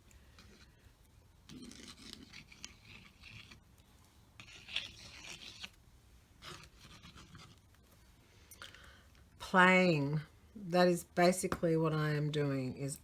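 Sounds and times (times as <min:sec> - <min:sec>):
brush scrubbing on canvas: 0:01.4 - 0:05.8, 0:06.4 - 0:08.2.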